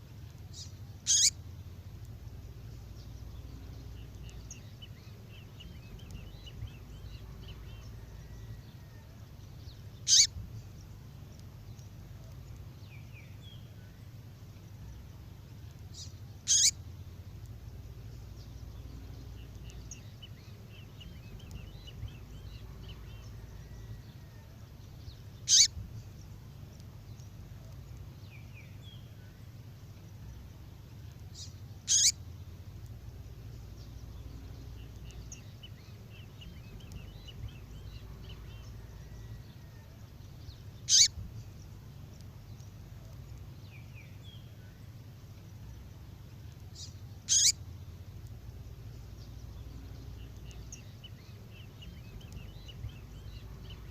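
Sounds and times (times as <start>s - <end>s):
songbird calls: 0.0s - 14.2s, 14.8s - 53.9s
low hum: 0.0s - 53.9s
faint twittering: 0.5s - 1.4s, 10.0s - 10.4s, 15.9s - 16.8s, 25.4s - 25.8s, 31.4s - 32.3s, 40.8s - 41.2s, 46.7s - 47.6s.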